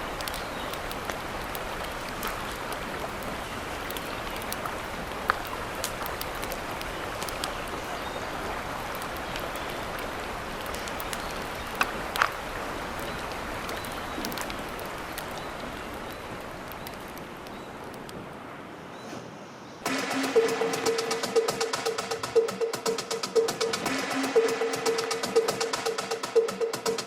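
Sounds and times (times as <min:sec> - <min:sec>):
water hissing: 0:00.0 - 0:18.0
sharp pops and ticks: 0:00.0 - 0:18.3, 0:19.9 - 0:27.0.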